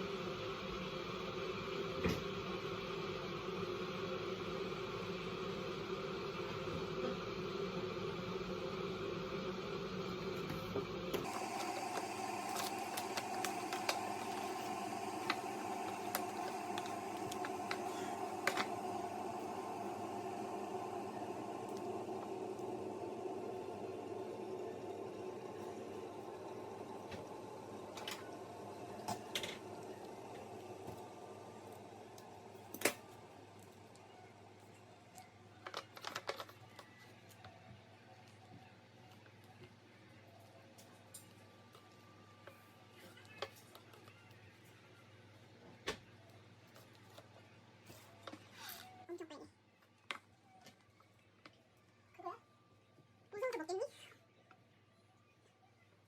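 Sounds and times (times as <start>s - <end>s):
low steady hum: 0.0s - 35.3s
indoor room noise: 0.0s - 56.0s.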